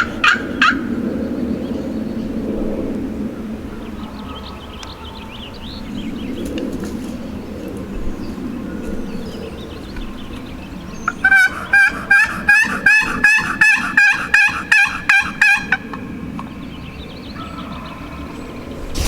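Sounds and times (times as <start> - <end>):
turkey hen yelps: 11.2 - 15.6.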